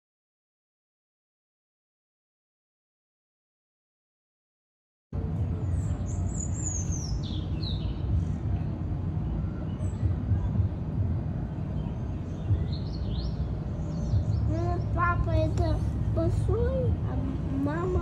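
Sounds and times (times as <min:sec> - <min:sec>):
low outdoor rumble: 0:05.2 - 0:18.0
small birds chirping: 0:05.5 - 0:18.0.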